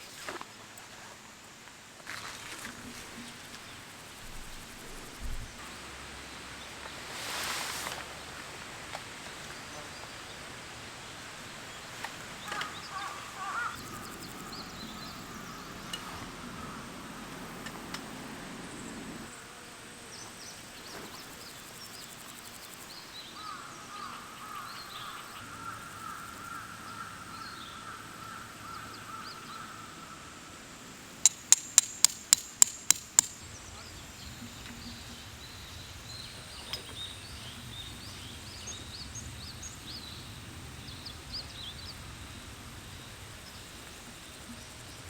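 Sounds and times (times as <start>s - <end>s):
birds calling: 8.2s - 19.5s, 22.9s - 30.6s
sharp knocks: 31.3s - 33.4s.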